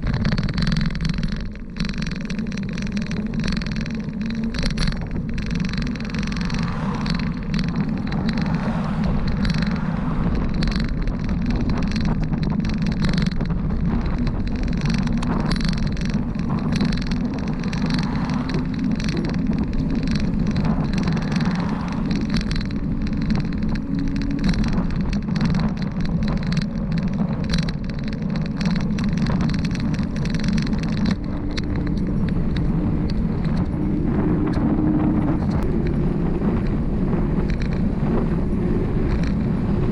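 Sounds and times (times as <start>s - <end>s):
bicycle road noise: 0.0s - 39.9s
rushing wind: 0.0s - 39.9s
small rattles and clicks: 0.0s - 39.9s.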